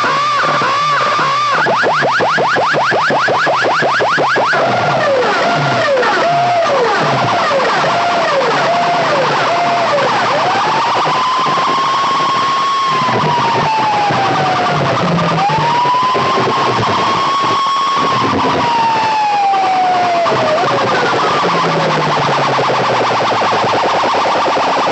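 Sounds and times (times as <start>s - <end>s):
steady bass beat: 0.0s - 10.6s, 19.8s - 24.0s
siren-like tone swooping: 0.0s - 24.9s.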